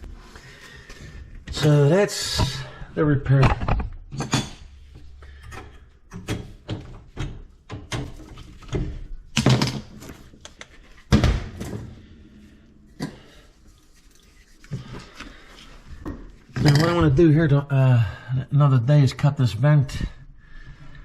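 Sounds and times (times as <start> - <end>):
objects knocking and thunking: 1.3 - 12.1, 16.0 - 17.2.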